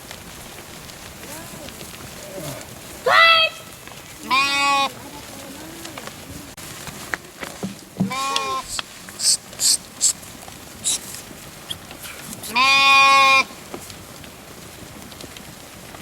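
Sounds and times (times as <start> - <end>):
sheep bleating: 2.2 - 6.1, 8.0 - 9.8, 12.4 - 13.6
short hissing noises: 8.1 - 12.6.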